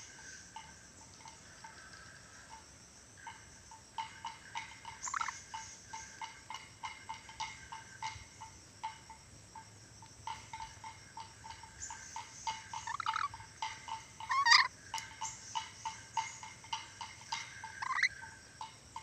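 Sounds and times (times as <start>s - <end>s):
bird chirping notes: 4.4s - 6.3s, 10.6s - 18.4s
rough bird call: 11.8s - 18.3s.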